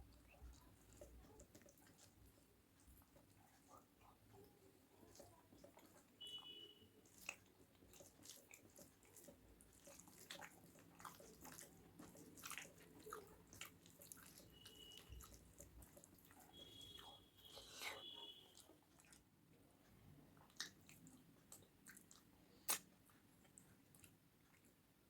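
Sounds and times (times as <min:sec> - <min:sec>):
close-up chewing: 0:00.0 - 0:25.0
wet mouth clicks and smacks: 0:20.4 - 0:24.7.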